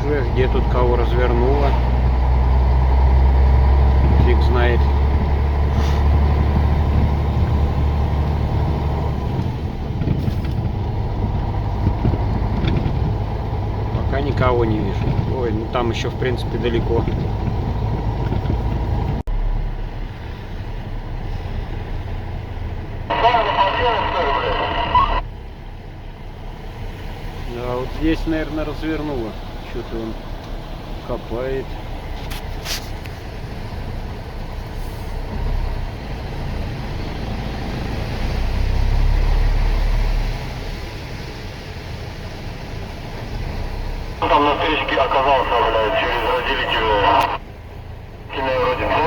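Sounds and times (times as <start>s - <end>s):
road noise inside cab: 0.0s - 49.0s
truck engine rumble: 0.0s - 49.0s
truck engine running: 44.2s - 49.0s.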